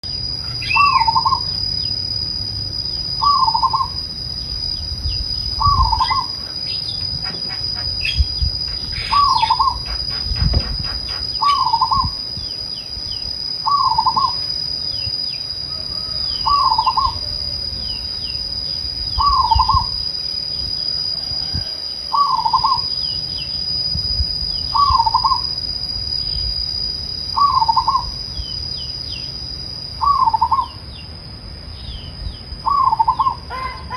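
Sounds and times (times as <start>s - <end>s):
dove cooing: 0.6s - 1.5s, 3.2s - 4.0s, 5.6s - 8.2s, 8.9s - 12.2s, 13.7s - 14.4s, 15.7s - 17.6s, 19.2s - 19.9s, 32.7s - 33.9s.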